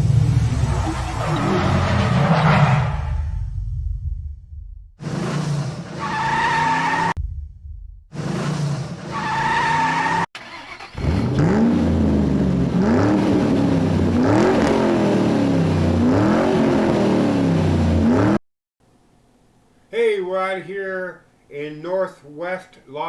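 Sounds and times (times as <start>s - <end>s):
car engine revving: 0.0s - 3.4s, 5.0s - 7.2s, 8.1s - 18.4s
car tyres squealing: 0.5s - 3.3s, 5.0s - 7.2s, 8.2s - 11.6s.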